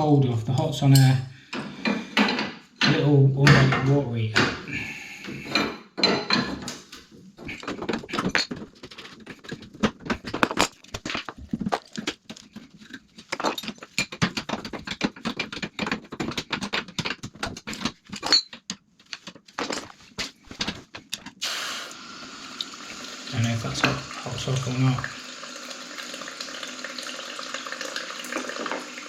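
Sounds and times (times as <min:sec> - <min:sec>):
tools and metal fittings clinking: 0:00.5 - 0:02.6, 0:05.3 - 0:21.4.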